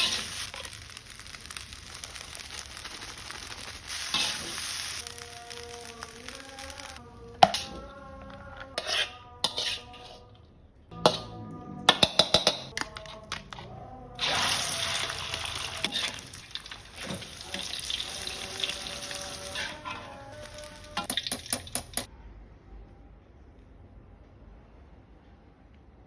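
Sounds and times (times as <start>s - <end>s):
frying sizzle: 0.0s - 7.0s, 14.2s - 22.1s
background music: 5.0s - 22.1s.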